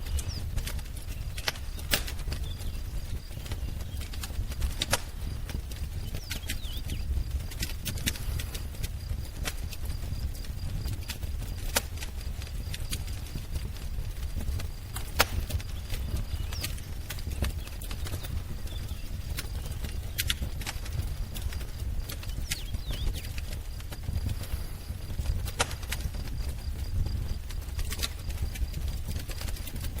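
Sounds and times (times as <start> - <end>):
faint bird chirps: 0.0 - 4.3, 6.0 - 8.6, 15.3 - 25.0
wood fire crackling and popping: 0.0 - 30.0.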